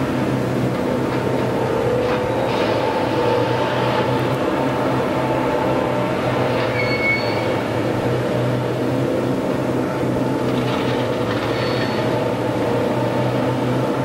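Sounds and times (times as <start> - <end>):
train mechanical drone: 0.0 - 14.0
high-pitched squeal: 6.6 - 7.5.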